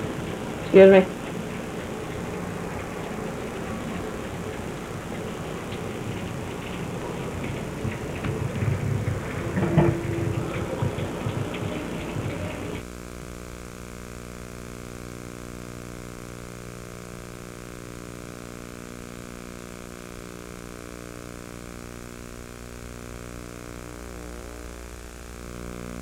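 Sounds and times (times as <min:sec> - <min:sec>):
loud noisy sound: 0:00.0 - 0:12.9
buzzing hum: 0:00.0 - 0:26.0.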